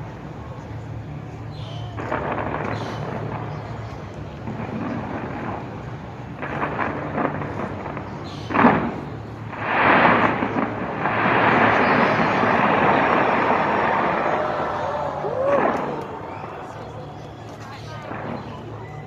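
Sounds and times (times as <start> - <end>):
fireworks crackling and booming: 0.0 - 19.0
sharp firework bang: 1.8 - 3.8, 6.4 - 16.5.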